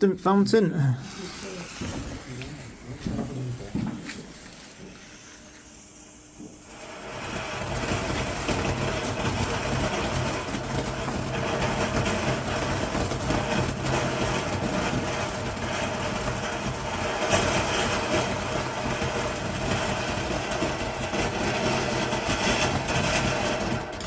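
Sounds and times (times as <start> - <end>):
firework fountain hissing: 0.8 - 24.0.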